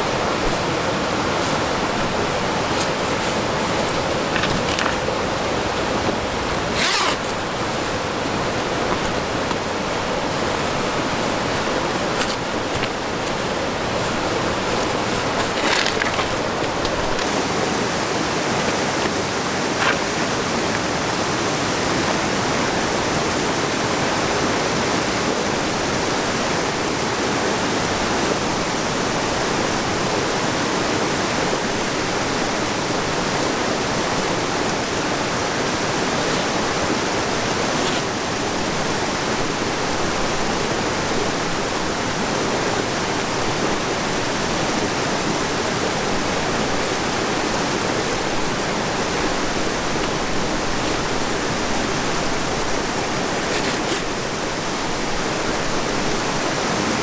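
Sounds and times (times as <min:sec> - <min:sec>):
flowing river water: 0:00.0 - 0:57.0.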